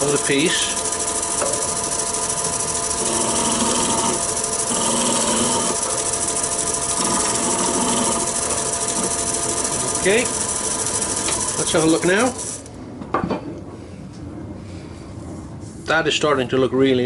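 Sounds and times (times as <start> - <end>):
gouge shaving spinning wood: 0.0 - 12.6
wood lathe humming: 0.0 - 12.7.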